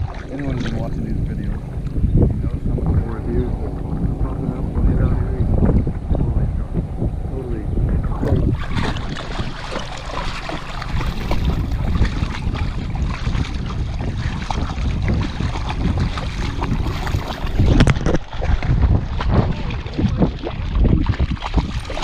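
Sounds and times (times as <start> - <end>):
wind buffeting microphone: 0.0 - 22.0
dog splashing in water: 8.3 - 22.0.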